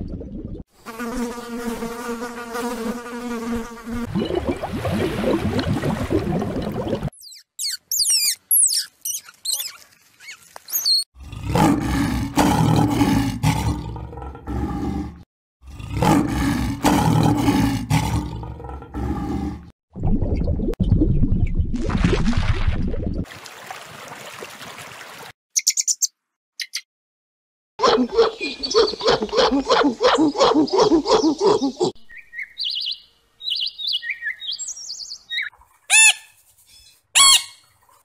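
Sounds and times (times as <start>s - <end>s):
fly buzzing: 0.8s - 4.1s
lions growling: 11.2s - 19.7s.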